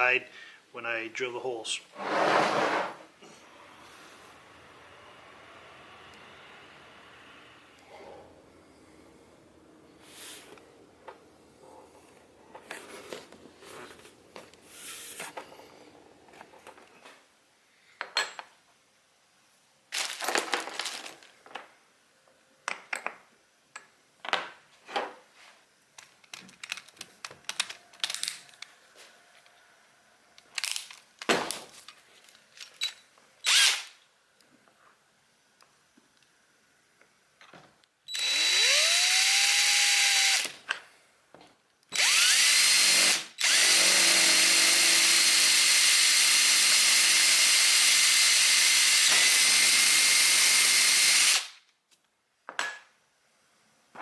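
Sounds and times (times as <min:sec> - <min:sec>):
short scraping bursts: 0:02.0 - 0:03.2.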